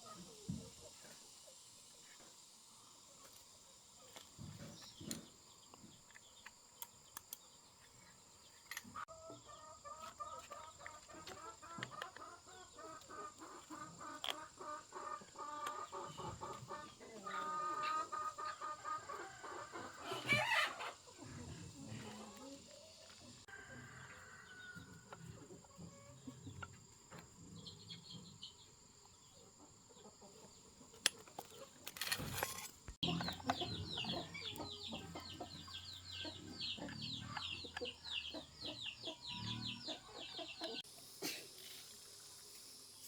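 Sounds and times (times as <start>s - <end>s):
repeated animal calls: 11.2s - 22.9s.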